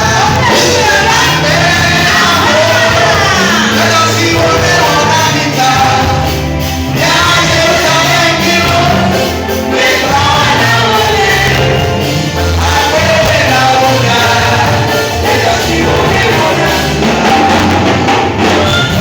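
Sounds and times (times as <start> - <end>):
gospel music with singing: 0.0 - 19.0.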